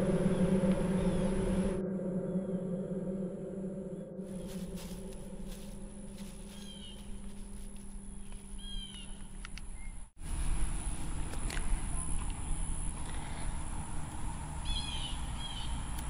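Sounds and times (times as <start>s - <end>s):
low rumble: 0.0s - 15.8s
bird chirps: 6.2s - 7.4s, 8.0s - 10.1s, 14.6s - 15.9s.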